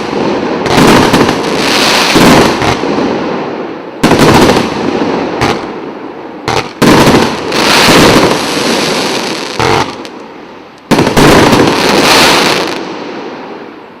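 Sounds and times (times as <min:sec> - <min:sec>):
firework hiss: 0:06.5 - 0:13.2.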